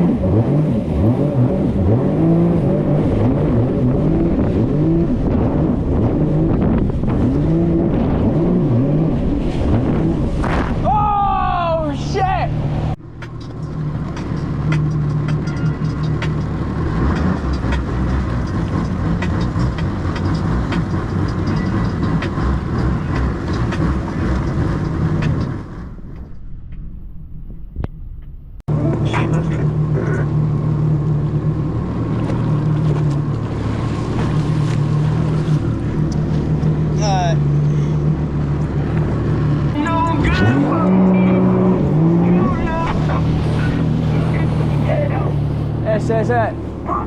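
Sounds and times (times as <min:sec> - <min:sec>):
jet ski engine running hard: 0:00.0 - 0:10.4, 0:28.7 - 0:47.0
rushing water and wind: 0:00.0 - 0:13.0, 0:30.3 - 0:47.0.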